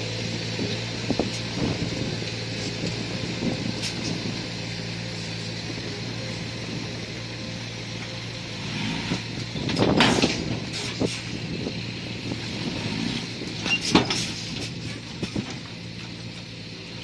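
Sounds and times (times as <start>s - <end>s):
bulldozer engine humming: 0.0s - 17.0s
metallic clanking and grinding: 7.9s - 16.6s.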